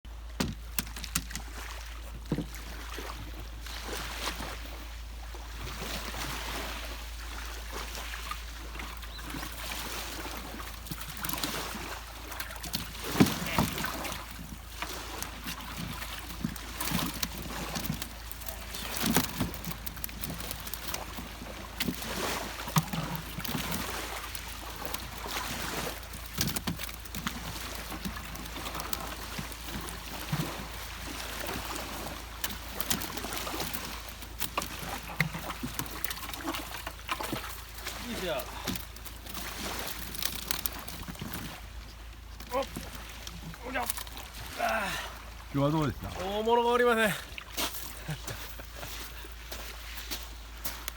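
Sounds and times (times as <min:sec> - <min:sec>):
boat knocks and bumps: 0:00.1 - 0:03.4, 0:09.2 - 0:44.6
water lapping against a boat: 0:00.1 - 0:50.9.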